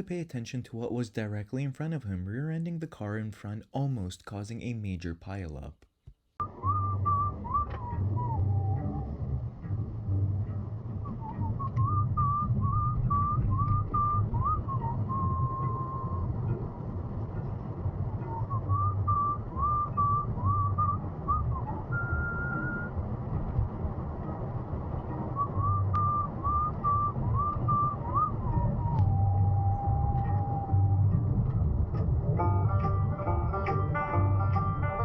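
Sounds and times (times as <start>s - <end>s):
person whistling a tune: 6.4s - 9.1s, 11.1s - 16.2s, 18.3s - 22.9s, 25.4s - 31.0s
vehicle rumble on road: 6.4s - 35.0s.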